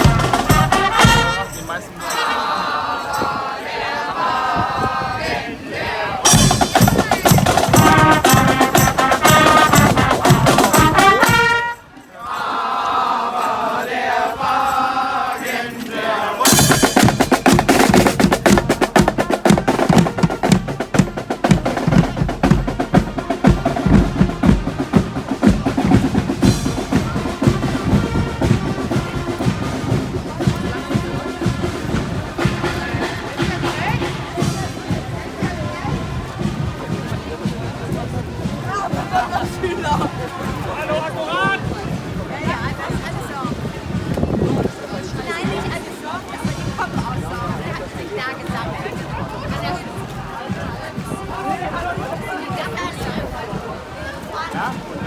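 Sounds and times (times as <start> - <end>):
snare and bass drums: 0.0 - 1.8, 6.2 - 11.8, 16.5 - 53.6
marching band music: 0.0 - 4.3, 5.9 - 44.5, 45.1 - 55.0.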